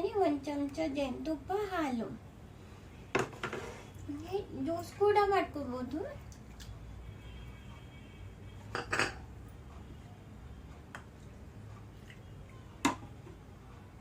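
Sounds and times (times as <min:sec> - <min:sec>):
low steady hum: 0:00.0 - 0:14.0
kitchen utensils knocking and clinking: 0:08.7 - 0:09.2.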